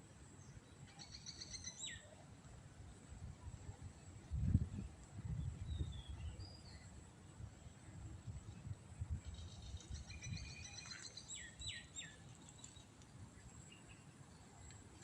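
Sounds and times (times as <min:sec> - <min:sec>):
bird chirping: 0:00.4 - 0:02.2, 0:09.2 - 0:14.6.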